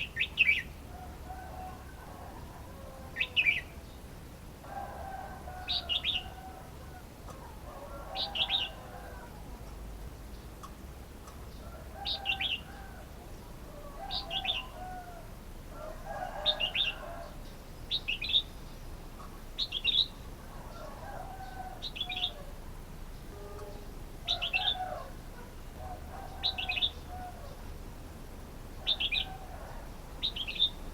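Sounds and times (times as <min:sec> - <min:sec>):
bird chirping phrases: 0:30.2 - 0:30.9.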